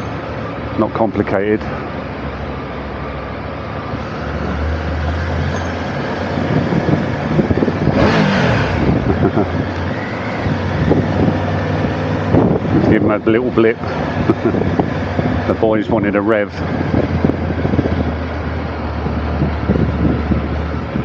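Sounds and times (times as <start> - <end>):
motorcycle engine running: 5.4 - 21.0.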